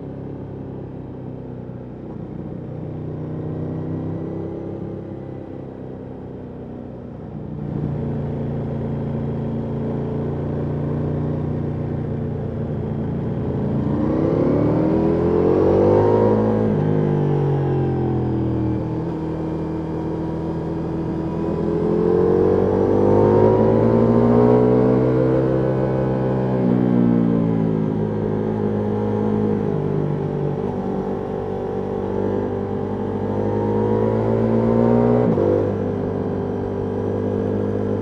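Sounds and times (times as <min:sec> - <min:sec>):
motorcycle engine revving: 0:12.8 - 0:38.0.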